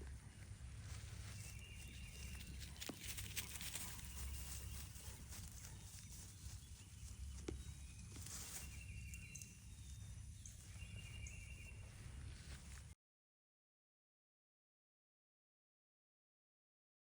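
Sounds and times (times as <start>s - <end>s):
sheep tearing and chewing grass: 0.0s - 10.1s.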